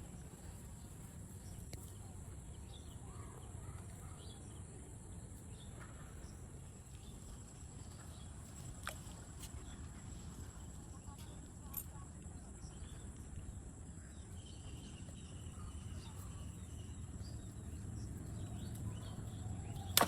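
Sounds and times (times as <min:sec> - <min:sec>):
sharp click: 0:19.8 - 0:20.0.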